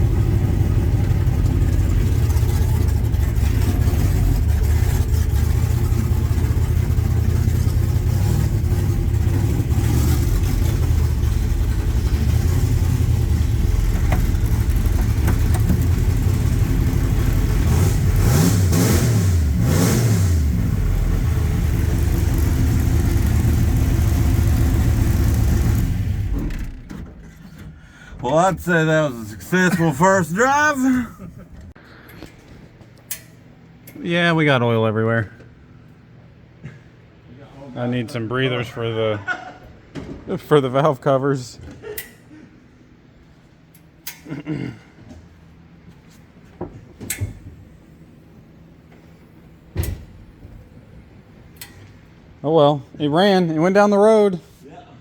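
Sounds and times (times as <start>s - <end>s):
car engine running and revving: 0.0s - 26.8s.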